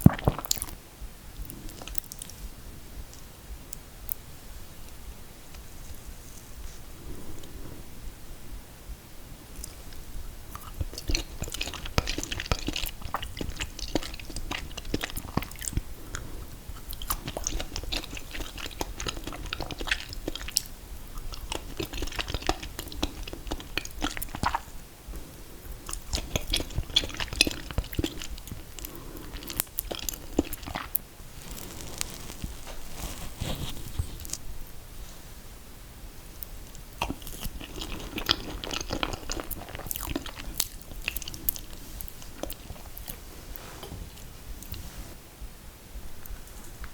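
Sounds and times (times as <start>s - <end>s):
crunchy chewing: 0.0s - 0.8s, 1.4s - 2.6s, 9.5s - 34.5s, 36.3s - 45.1s.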